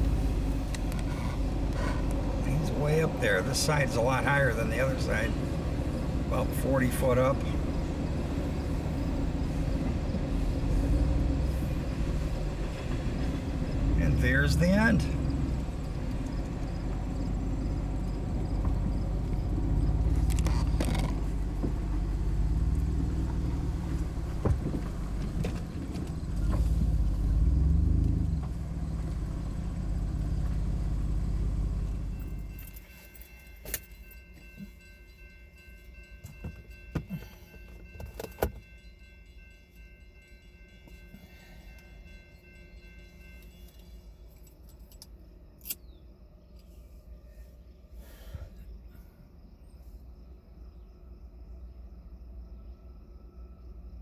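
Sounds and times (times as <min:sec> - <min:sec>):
railroad crossing warning bell: 0:00.0 - 0:17.0, 0:29.8 - 0:45.7
car road and engine noise: 0:00.0 - 0:54.0.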